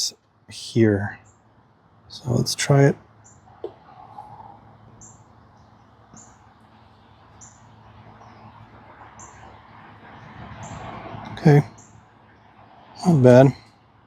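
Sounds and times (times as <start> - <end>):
faint background noise: 0.0 - 14.0
bird chirping: 3.2 - 9.6, 11.6 - 12.5.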